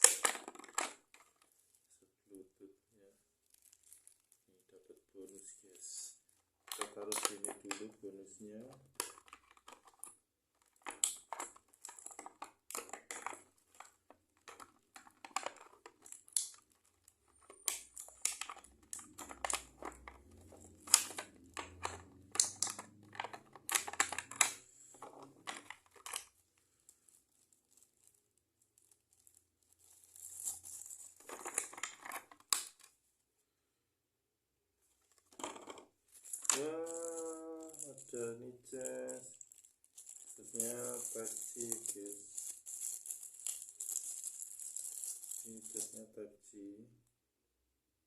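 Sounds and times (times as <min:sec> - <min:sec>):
plastic packaging crinkling: 0:00.0 - 0:01.9, 0:03.4 - 0:32.9, 0:35.2 - 0:46.1.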